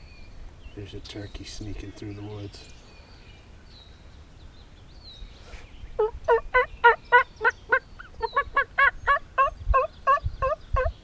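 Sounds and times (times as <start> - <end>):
wild turkey calling: 6.0 - 11.0.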